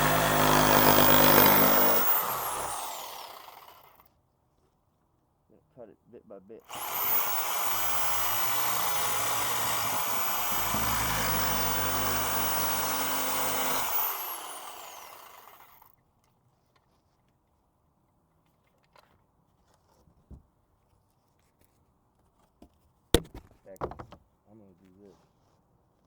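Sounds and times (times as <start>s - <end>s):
power tool cutting: 0.0s - 4.0s, 6.7s - 15.8s.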